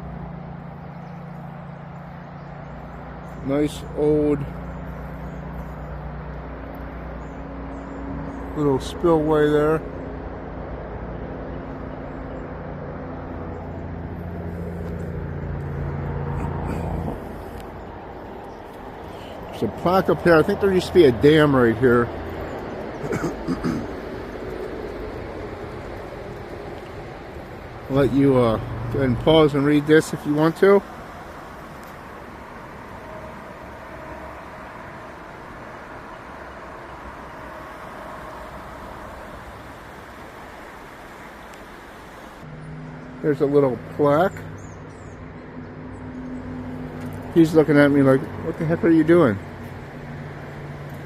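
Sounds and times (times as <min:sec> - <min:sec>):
engine hum: 0:00.0 - 0:51.0
road traffic rumble: 0:00.0 - 0:51.0.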